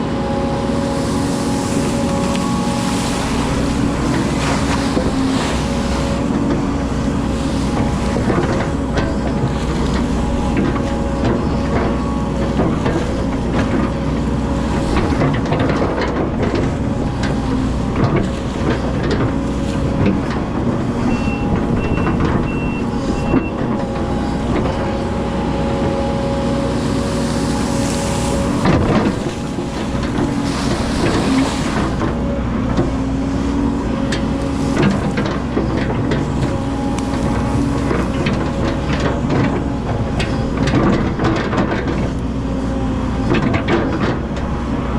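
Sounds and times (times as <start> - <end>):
excavator diesel engine: 0.0 - 44.9
machine knocks and clanks: 1.7 - 42.4, 43.2 - 44.5
short beeps: 21.1 - 23.6.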